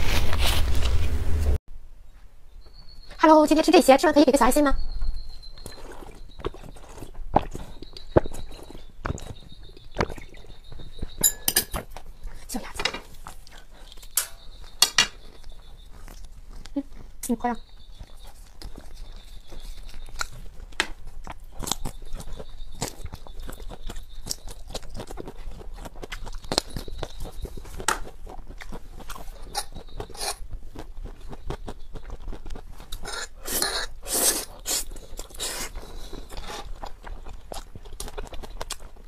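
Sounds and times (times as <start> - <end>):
chewing and crunching of food: 4.8 - 39.0
wet mouth clicks: 5.6 - 10.5.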